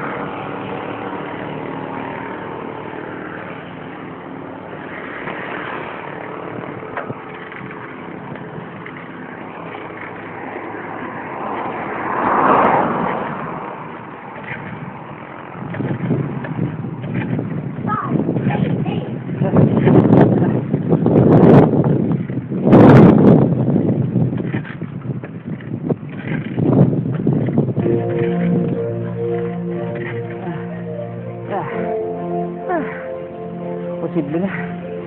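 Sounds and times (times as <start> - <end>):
vehicle passing by: 0.0 - 16.3, 27.8 - 35.0
traffic: 0.0 - 21.2, 23.6 - 35.0.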